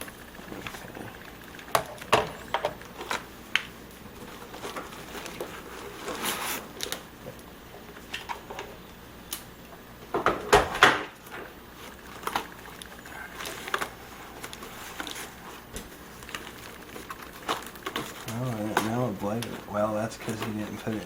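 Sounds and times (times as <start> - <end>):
rustling packaging: 0.2 - 7.2, 11.2 - 21.0.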